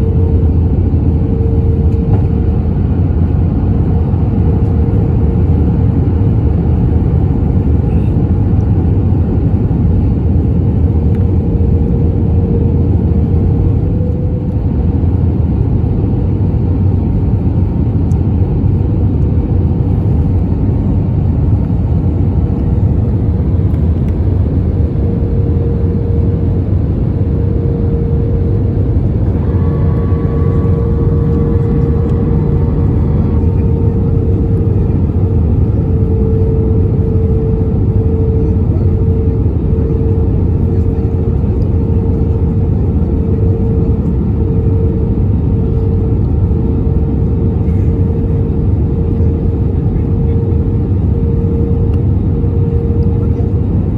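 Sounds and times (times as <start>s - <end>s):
cabin engine and airflow rumble: 0.0s - 53.9s
constant hum: 0.0s - 53.9s
faint high whine: 22.6s - 44.9s.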